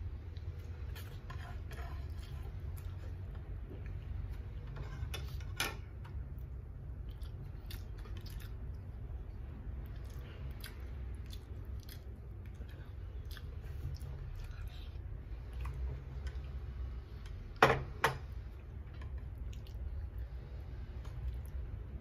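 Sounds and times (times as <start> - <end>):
man chewing and smacking: 6.4 - 9.1, 9.8 - 14.9, 19.3 - 20.0.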